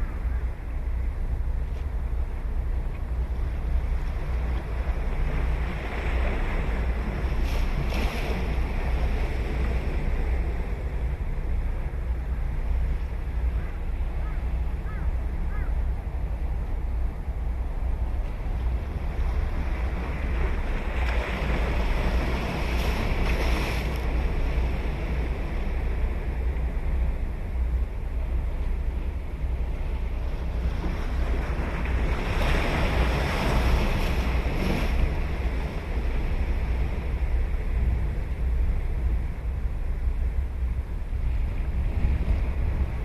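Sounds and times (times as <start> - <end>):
wind rumble on microphone: 0.0 - 43.0
sea waves breaking on beach: 3.7 - 11.0, 18.4 - 27.4, 29.4 - 39.1.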